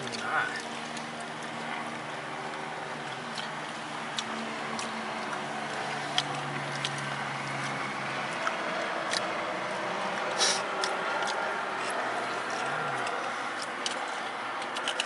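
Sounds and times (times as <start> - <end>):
car engine humming: 0.0 - 15.0
chewing with wet clicks: 0.0 - 15.0.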